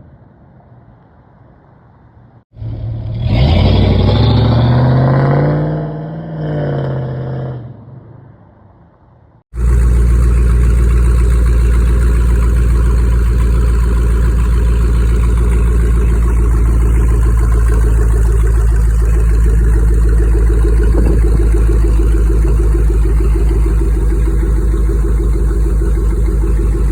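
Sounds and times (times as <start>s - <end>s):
loud engine exhaust idling: 9.5s - 26.9s.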